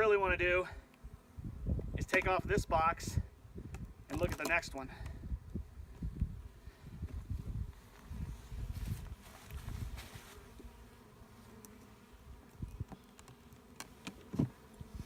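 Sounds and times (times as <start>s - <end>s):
honeybees buzzing: 5.2s - 15.0s.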